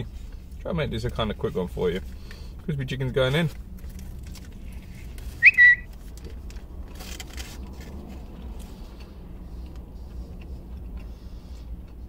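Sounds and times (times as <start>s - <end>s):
low hum inside a car: 0.0s - 12.0s
person chewing crispy food: 3.6s - 12.0s.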